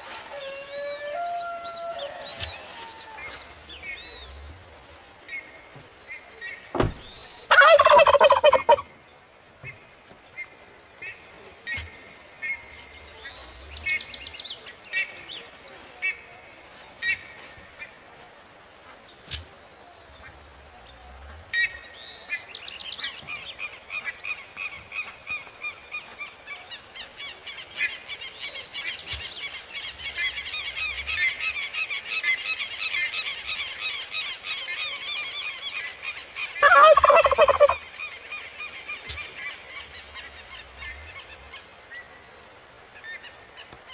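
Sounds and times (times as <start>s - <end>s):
turkey gobbling: 7.5s - 8.8s, 36.6s - 37.8s
lapwings calling shrilly: 36.6s - 37.8s.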